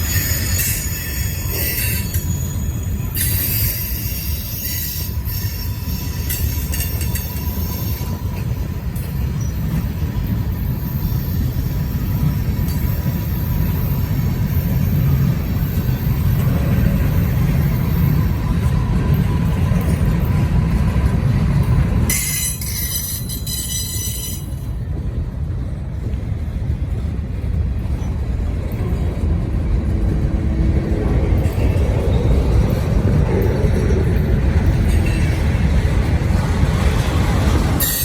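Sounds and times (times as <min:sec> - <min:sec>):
high wheel squeal: 0:00.0 - 0:08.6, 0:22.1 - 0:24.7, 0:37.8 - 0:38.0
train wheels rumbling on rail: 0:00.0 - 0:38.0.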